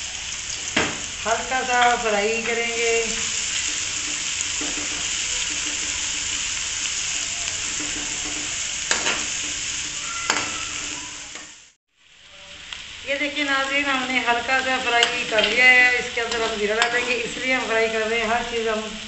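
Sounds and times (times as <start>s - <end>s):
onions sizzling in fat: 0.0s - 19.0s
metal spoon scraping pan: 3.2s - 10.5s, 14.9s - 17.6s.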